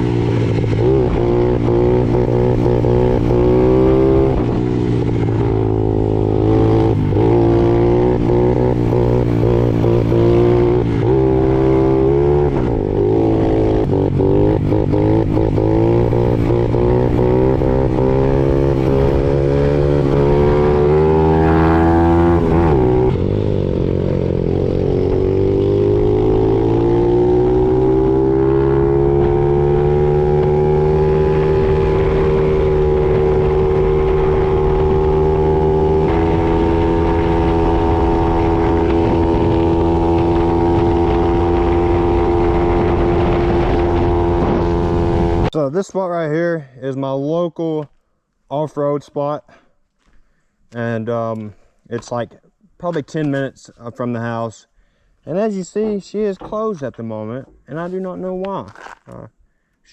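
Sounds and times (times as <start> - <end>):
dirt bike engine revving: 0.0 - 45.6.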